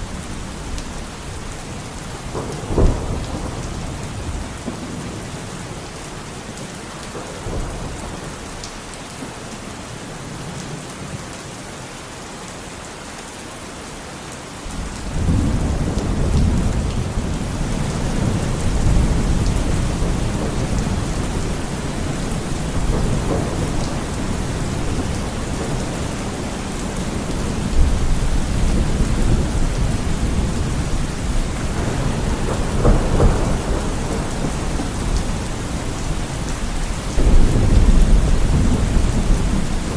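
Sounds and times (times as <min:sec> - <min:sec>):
steady rain falling: 0:00.0 - 0:39.9
rolling thunder: 0:01.3 - 0:05.8, 0:14.7 - 0:39.9.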